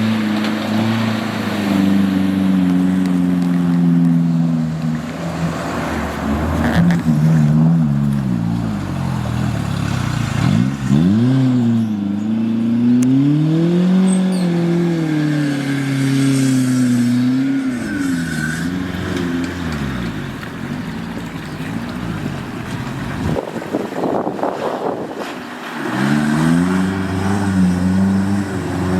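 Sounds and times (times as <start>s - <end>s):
off-road vehicle engine revving: 0.0s - 28.9s.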